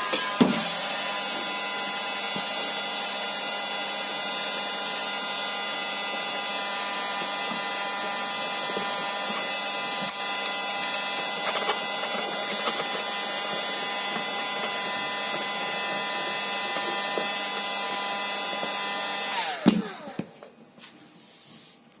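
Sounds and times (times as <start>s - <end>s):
electric power tool running: 0.0s - 20.5s.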